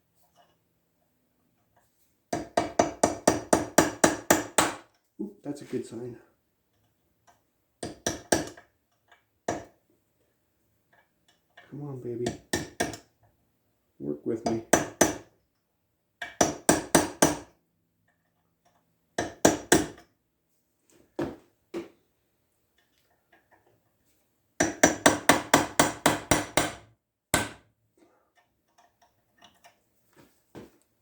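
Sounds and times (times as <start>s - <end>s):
hammer striking steel chisel: 2.3s - 4.9s, 7.8s - 8.6s, 9.5s - 9.7s, 12.2s - 13.1s, 14.4s - 15.3s, 16.2s - 17.5s, 24.6s - 27.6s.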